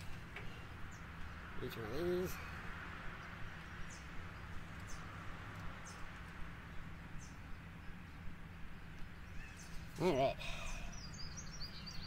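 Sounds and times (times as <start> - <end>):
bird chirping: 3.1 - 12.0.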